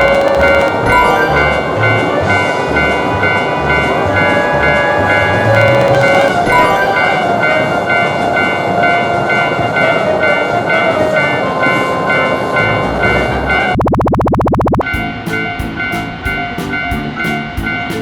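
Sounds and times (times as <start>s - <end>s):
passing train: 0.0s - 13.8s, 14.8s - 18.0s
railroad crossing bell dinging: 0.0s - 13.8s, 14.8s - 18.0s
music with steady beat: 14.8s - 18.0s.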